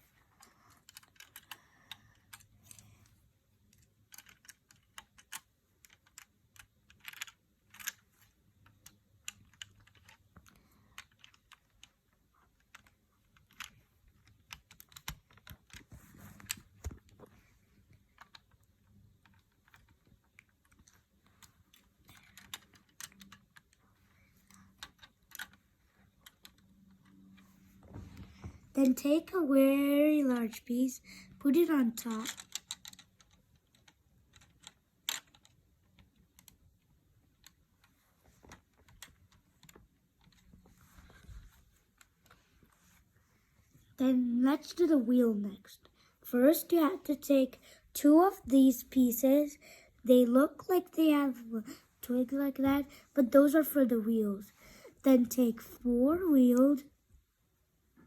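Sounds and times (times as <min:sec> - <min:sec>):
plastic bricks clicking and rattling: 0:03.7 - 0:15.8, 0:32.1 - 0:36.6.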